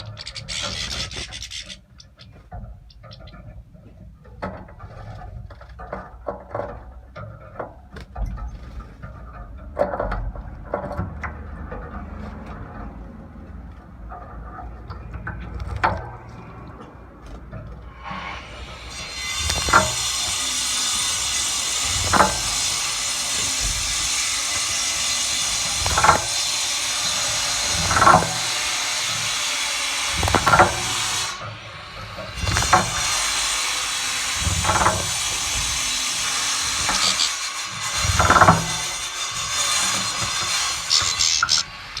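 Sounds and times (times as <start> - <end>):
bird splashing in water: 18.8 - 31.4, 32.3 - 37.3
high-pitched background noise: 40.9 - 42.0.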